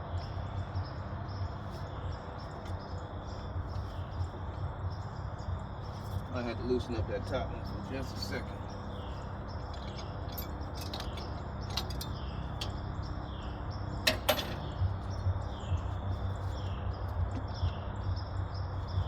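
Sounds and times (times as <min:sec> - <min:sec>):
steady low hum: 0:00.0 - 0:19.0
metal tools clicking: 0:09.7 - 0:12.8, 0:14.0 - 0:14.8.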